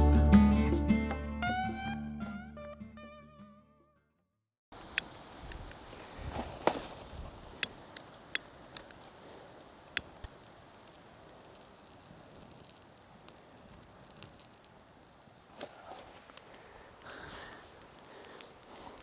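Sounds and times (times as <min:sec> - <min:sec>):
faint steady hiss: 0:04.8 - 0:19.0
fire crackling and popping: 0:04.8 - 0:19.0.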